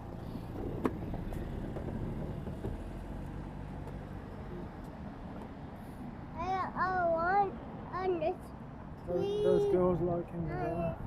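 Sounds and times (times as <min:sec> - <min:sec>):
road vehicles rumbling: 0:00.0 - 0:11.0.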